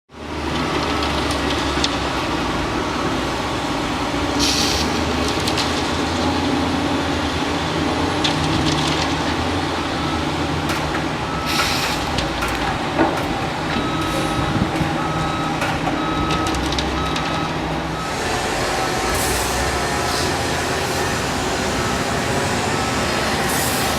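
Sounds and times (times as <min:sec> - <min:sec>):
heavy construction machinery running: 0:00.1 - 0:23.9
reversing alarm beeping: 0:11.2 - 0:12.1, 0:13.7 - 0:23.9.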